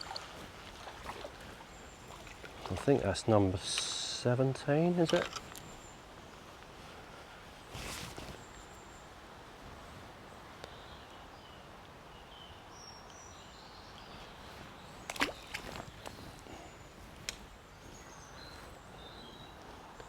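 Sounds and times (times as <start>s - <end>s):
faint birdsong: 0.0s - 20.0s
outdoor background hiss: 0.0s - 20.0s.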